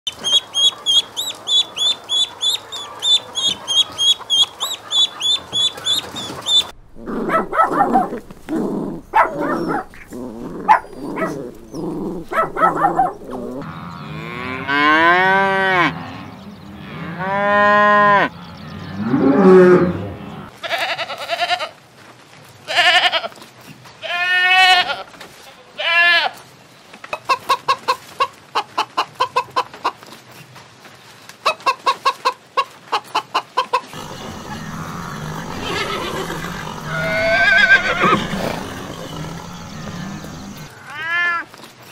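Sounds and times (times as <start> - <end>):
ducklings peeping: 0.1 - 6.7, 34.0 - 40.7
dog barking and yelping: 2.8 - 13.6
cattle mooing: 7.0 - 20.5, 34.0 - 40.7.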